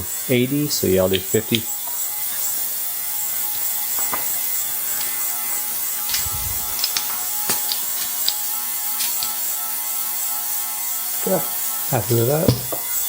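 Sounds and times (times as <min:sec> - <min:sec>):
steady hiss: 0:00.0 - 0:09.6
hands clicking and tapping on bicycle wheel: 0:01.0 - 0:01.7, 0:06.1 - 0:09.4, 0:12.4 - 0:12.8.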